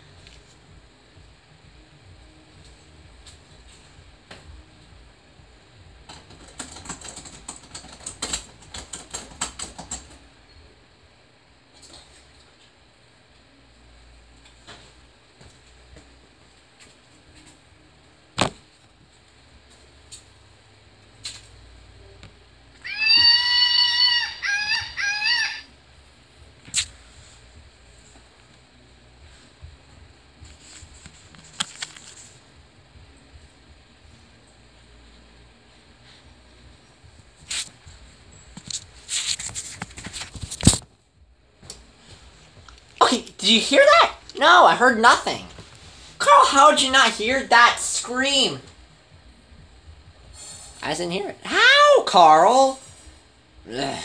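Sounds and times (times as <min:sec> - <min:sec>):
recorded peacock calls: 0:22.8 - 0:25.7.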